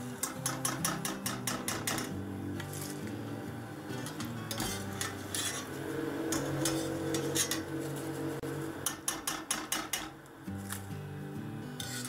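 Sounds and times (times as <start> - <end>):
metal skimmer scraping frying pan: 0.0 - 10.0, 11.8 - 12.0
sharp metal taps: 0.2 - 2.2, 8.8 - 10.2.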